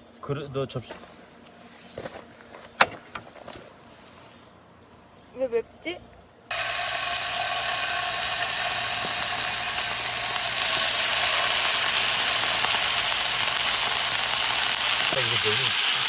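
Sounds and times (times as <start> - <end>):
food sizzling in a pan: 6.5 - 16.0.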